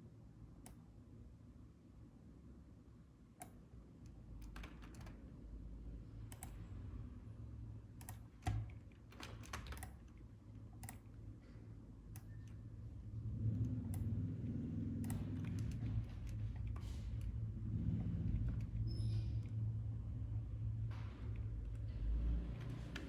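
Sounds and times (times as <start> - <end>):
low steady hum: 0.0 - 23.0
keyboard and mouse clicks: 4.4 - 5.2, 6.3 - 6.6, 8.0 - 11.2, 13.6 - 17.4.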